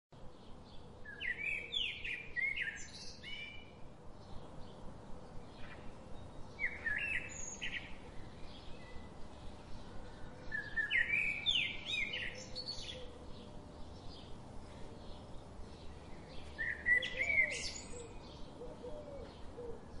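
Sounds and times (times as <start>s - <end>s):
faint steady hum: 0.2s - 20.0s
songbird whistling song: 1.1s - 3.8s, 6.5s - 9.2s, 10.4s - 13.2s, 16.2s - 20.0s.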